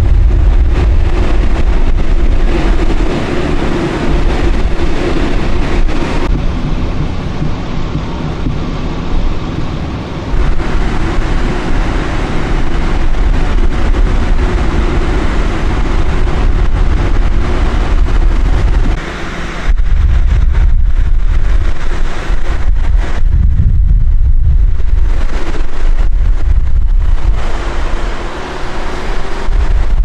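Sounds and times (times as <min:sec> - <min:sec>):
freeway traffic passing: 0:00.0 - 0:30.0
wind rumbling on microphone: 0:00.0 - 0:30.0.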